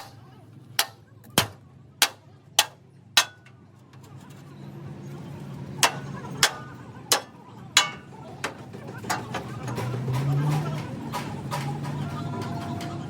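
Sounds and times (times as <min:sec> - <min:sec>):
hammer blows on metal: 0:05.8 - 0:11.9.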